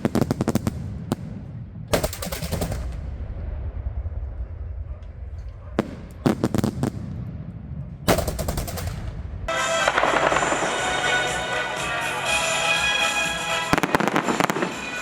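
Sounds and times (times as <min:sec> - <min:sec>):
low rumble: 0:00.8 - 0:06.3, 0:06.9 - 0:11.6
fireworks crackling reports: 0:09.4 - 0:15.0
music: 0:09.5 - 0:15.0.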